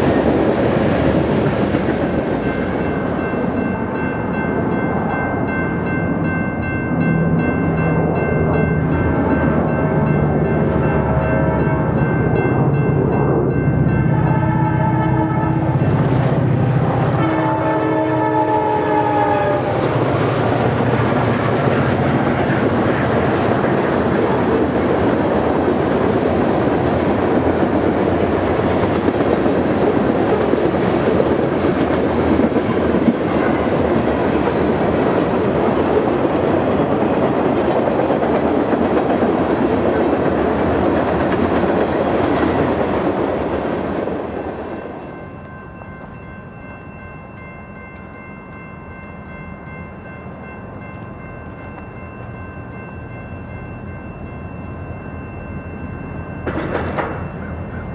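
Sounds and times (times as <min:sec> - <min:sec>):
locomotive horn: 0:10.9 - 0:12.0, 0:14.0 - 0:16.0, 0:16.8 - 0:20.0
freight train wheels clattering: 0:19.4 - 0:45.1, 0:56.3 - 0:57.9.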